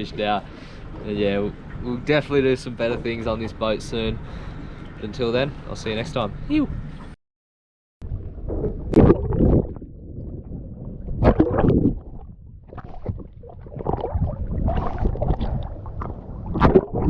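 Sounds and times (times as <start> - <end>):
water splashing around a boat: 0.0 - 7.2, 8.1 - 17.0
wind noise on microphone: 8.0 - 17.0.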